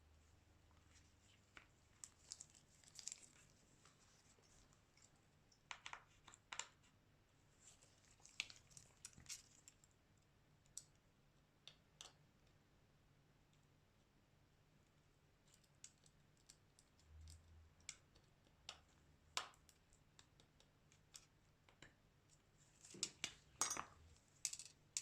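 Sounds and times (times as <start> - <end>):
small clicks and taps of tools: 5.0 - 6.9, 11.6 - 12.6, 15.4 - 25.0.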